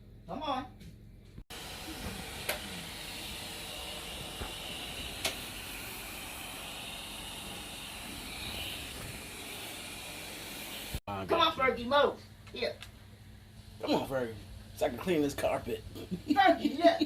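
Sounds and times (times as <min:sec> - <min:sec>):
vacuum cleaner running: 0:01.5 - 0:11.0.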